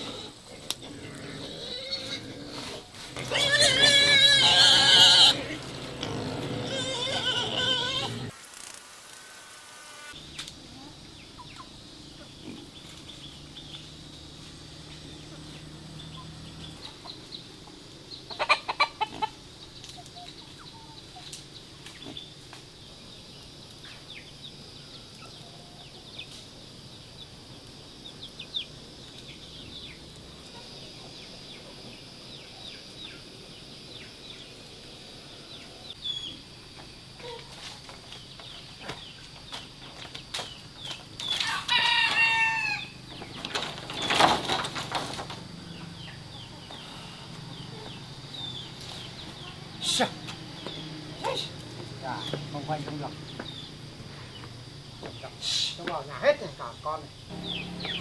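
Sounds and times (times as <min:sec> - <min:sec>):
chickens squawking loudly: 0:03.2 - 0:08.4, 0:41.4 - 0:45.3
chickens clucking: 0:18.2 - 0:21.4, 0:57.3 - 0:58.0.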